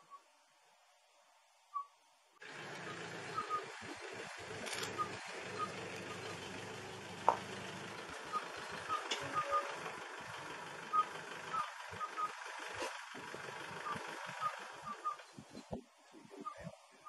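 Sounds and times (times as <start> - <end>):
steady outdoor hiss: 0.0 - 17.0
bird calling short pips: 2.9 - 3.8, 4.7 - 6.5, 8.3 - 9.8, 13.8 - 15.2.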